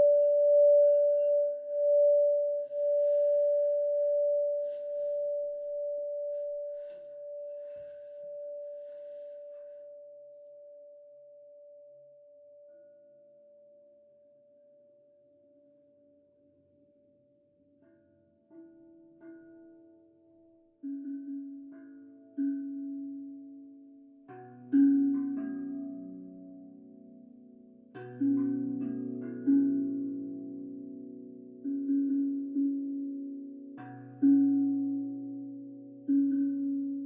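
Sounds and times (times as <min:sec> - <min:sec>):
faint instrument notes: 0:00.0 - 0:13.2
singing bowl ringing: 0:00.0 - 0:14.6.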